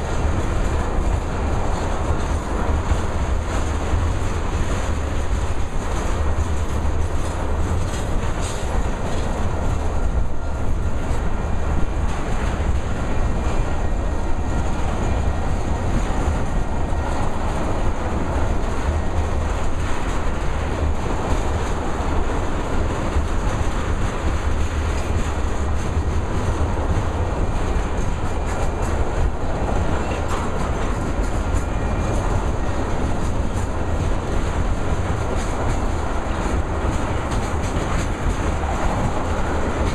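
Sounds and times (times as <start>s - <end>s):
freight train rumbling past: 0.0s - 39.9s
wheels clattering over rails: 0.0s - 39.9s.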